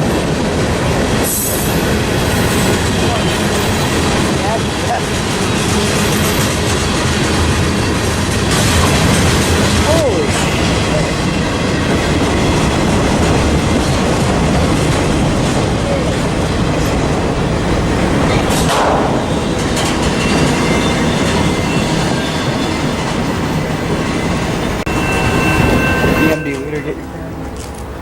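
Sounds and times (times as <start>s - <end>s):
train rumbling past: 0.0s - 28.0s
wheels clattering over rail joints: 0.0s - 28.0s.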